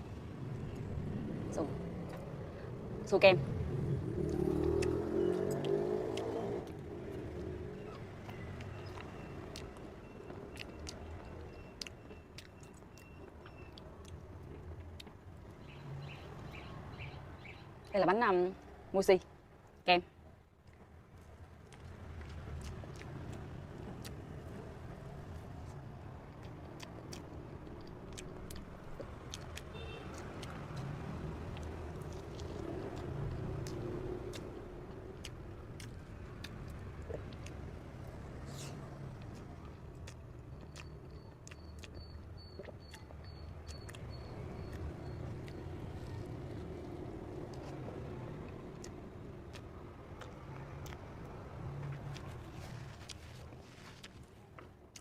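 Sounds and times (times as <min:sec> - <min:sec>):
sticky mouth clicks chewing: 0:04.2 - 0:07.6, 0:08.2 - 0:15.2, 0:21.6 - 0:24.8, 0:25.4 - 0:54.3.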